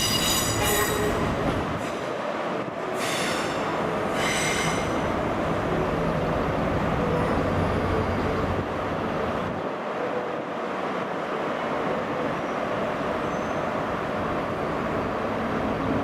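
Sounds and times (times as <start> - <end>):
wheels squealing on rails: 0.0 - 2.2, 2.9 - 5.1, 12.2 - 14.0
train rumbling: 0.0 - 16.0.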